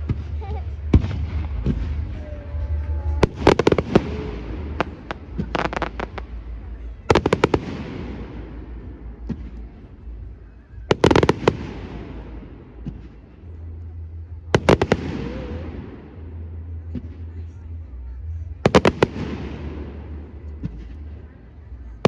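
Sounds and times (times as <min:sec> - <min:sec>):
fireworks bangs: 0:00.0 - 0:13.6, 0:14.6 - 0:16.3, 0:18.6 - 0:21.2
fireworks crackling hiss: 0:01.1 - 0:09.9.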